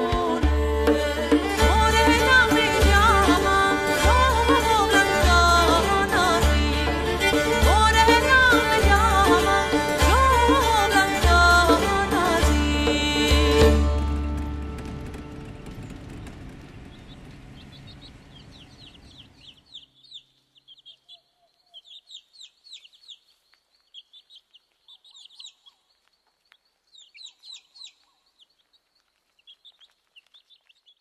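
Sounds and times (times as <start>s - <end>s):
traditional music: 0.0s - 15.5s
small birds chirping: 15.6s - 31.0s.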